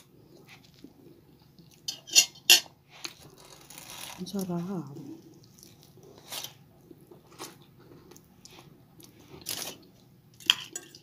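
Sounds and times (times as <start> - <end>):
close-up chewing: 5.1 - 10.5.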